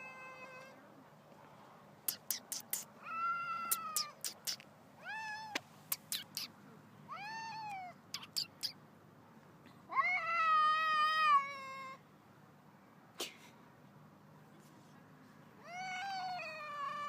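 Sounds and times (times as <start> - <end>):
cat meowing: 3.0 - 6.5, 15.6 - 17.0.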